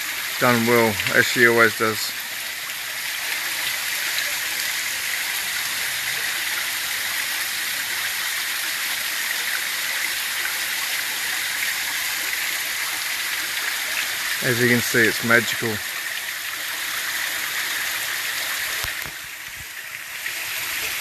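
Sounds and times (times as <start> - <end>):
waterfall rushing: 0.0 - 2.2, 13.6 - 15.9.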